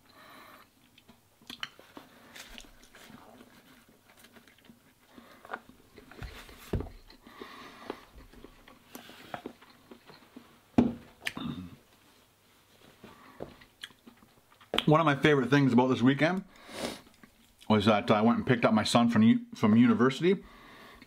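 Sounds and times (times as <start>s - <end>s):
person chewing noodles: 7.0s - 10.6s.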